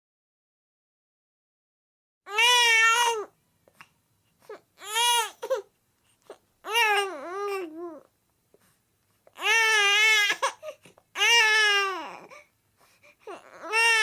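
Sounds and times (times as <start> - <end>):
child crying: 13.3 - 14.0.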